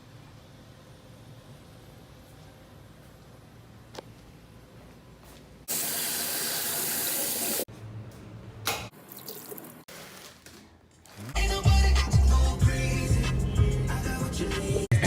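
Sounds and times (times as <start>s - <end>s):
water running from a tap: 5.7s - 7.7s.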